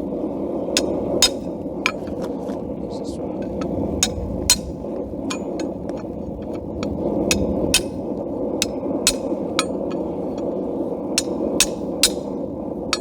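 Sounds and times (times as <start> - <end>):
hammer striking steel on anvil: 0.8 - 2.2, 3.4 - 13.0.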